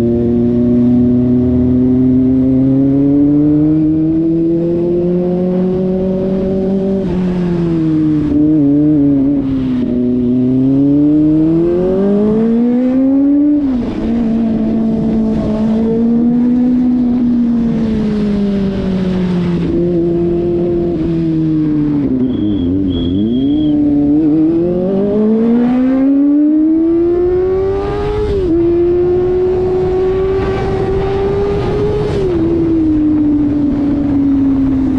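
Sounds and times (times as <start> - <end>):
motorcycle engine revving: 0.0 - 34.9
short high beeps: 22.2 - 23.8.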